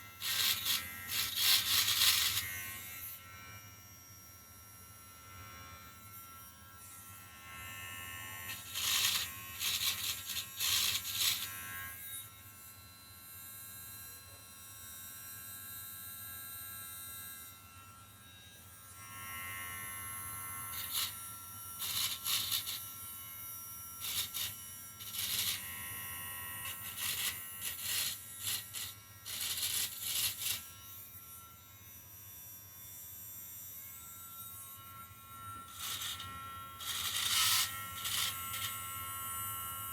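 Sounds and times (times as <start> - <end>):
rotary tool whining: 0.0 - 3.0, 8.5 - 12.0, 20.6 - 23.1, 24.0 - 31.1, 33.7 - 39.6
rotary tool grinding metal: 0.0 - 3.2, 6.9 - 12.3, 19.0 - 39.9.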